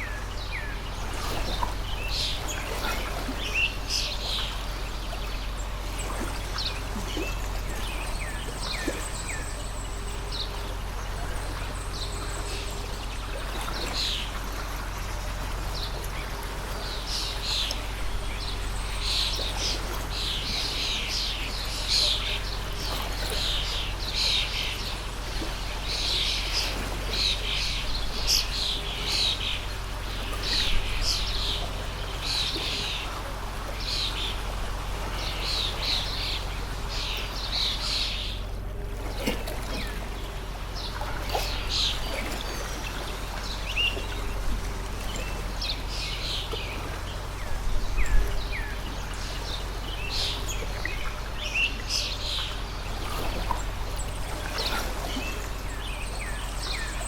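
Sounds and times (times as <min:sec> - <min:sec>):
stream water rushing: 0:00.0 - 0:57.0
small birds chirping: 0:39.2 - 0:57.0.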